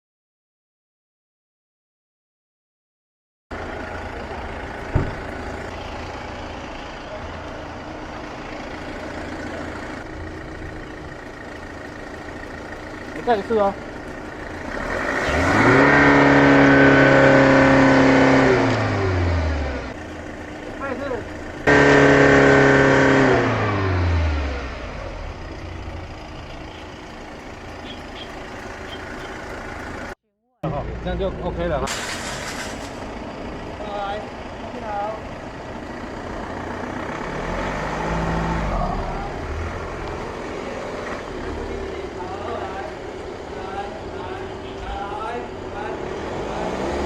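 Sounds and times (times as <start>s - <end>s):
diesel engine idling: 3.5s - 47.0s
sharp knock: 4.9s - 5.2s.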